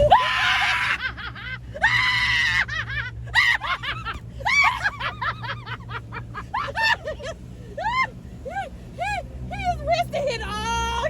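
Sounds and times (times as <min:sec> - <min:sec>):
short shrieking cries: 0:00.0 - 0:01.0.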